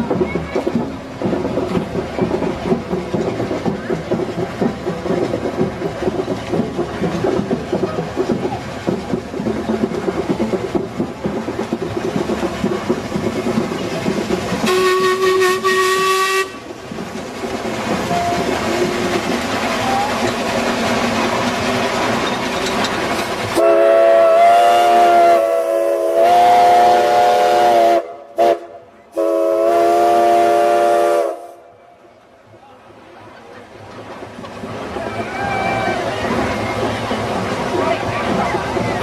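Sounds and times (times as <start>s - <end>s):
steam whistle blasts: 14.6s - 16.6s, 23.6s - 31.6s.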